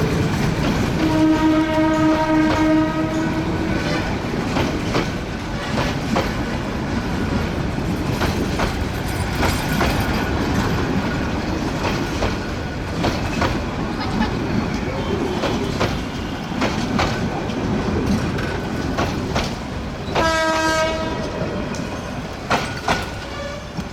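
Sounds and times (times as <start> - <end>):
train rumble: 0.0 - 23.9
train wheels clacking over rail joints: 0.0 - 23.9
train horn: 0.9 - 4.1, 20.2 - 21.6, 23.2 - 23.9.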